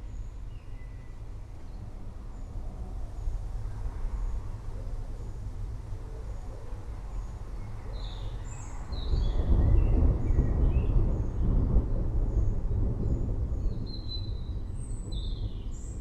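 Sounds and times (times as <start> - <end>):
distant thunder rumbling: 9.1 - 14.7.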